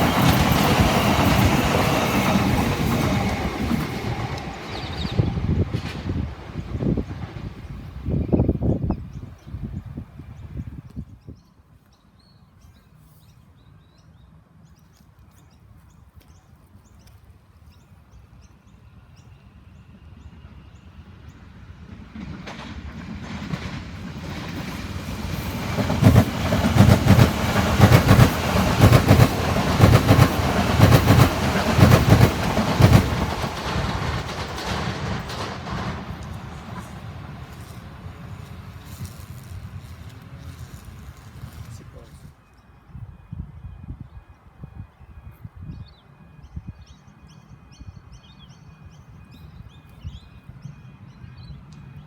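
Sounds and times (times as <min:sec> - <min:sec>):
wheels clickety-clack over rails: 0:00.0 - 0:08.6, 0:21.3 - 0:42.0
train passing: 0:00.0 - 0:10.8, 0:18.1 - 0:42.5, 0:43.9 - 0:52.0.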